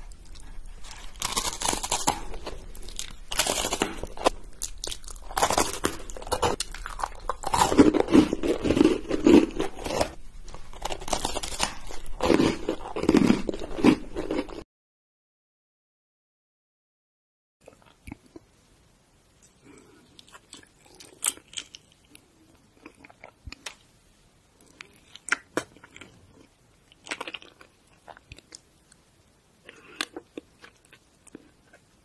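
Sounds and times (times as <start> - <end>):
biting crunchy biscuits: 0.0 - 14.6, 19.7 - 23.8, 24.6 - 28.7.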